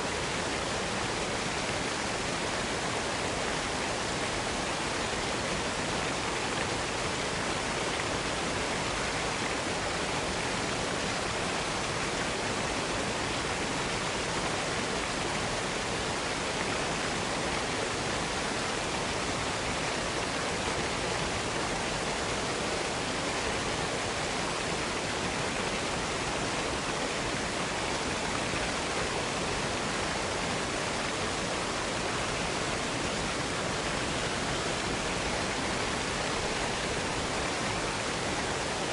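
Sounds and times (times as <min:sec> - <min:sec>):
waterfall splashing: 0:00.0 - 0:38.9.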